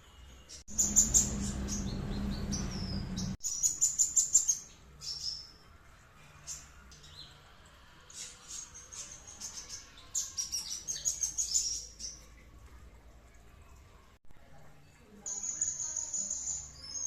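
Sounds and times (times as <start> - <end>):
songbird chirping: 0.4 - 5.7, 15.1 - 17.0.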